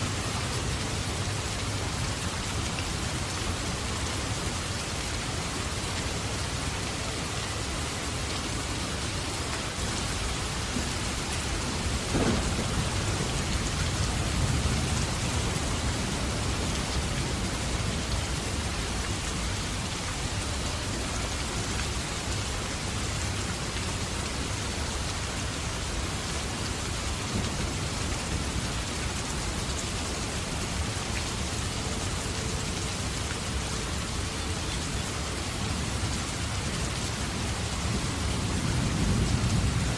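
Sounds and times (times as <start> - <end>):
steady rain falling: 0.0 - 39.9
thunder rumbling: 10.5 - 18.0.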